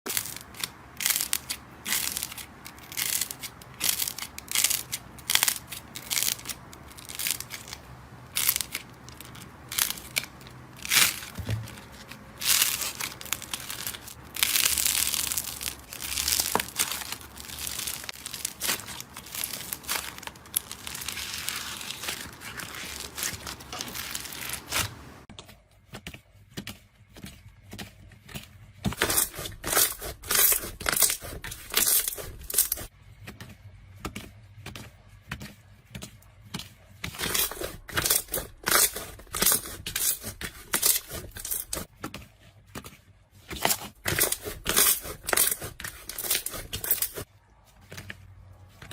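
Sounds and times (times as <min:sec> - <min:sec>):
crunchy material crushed by hand: 0:00.1 - 0:25.2, 0:28.9 - 0:32.9, 0:37.1 - 0:41.9, 0:43.5 - 0:47.3.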